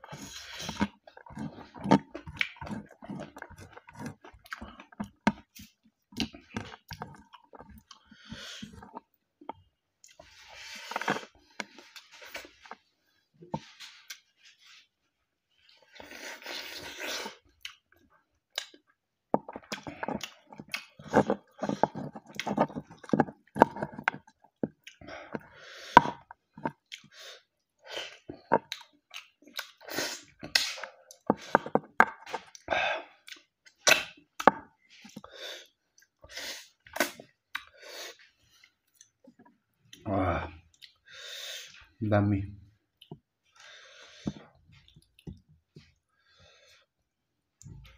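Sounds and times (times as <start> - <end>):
chewing and lip smacking: 0.0 - 9.2, 15.6 - 35.3, 35.9 - 40.1, 40.7 - 41.8, 44.4 - 46.0.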